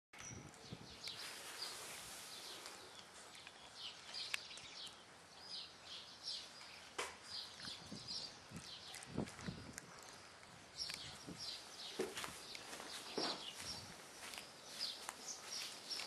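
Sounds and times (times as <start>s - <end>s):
birds chirping: 0.2s - 16.0s
faint outdoor hiss: 0.6s - 9.1s, 10.0s - 16.0s.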